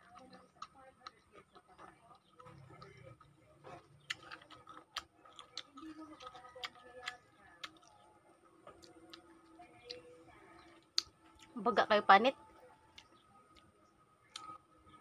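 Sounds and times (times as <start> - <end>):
mouth clicks and smacks chewing: 0.0 - 11.6, 14.3 - 14.6.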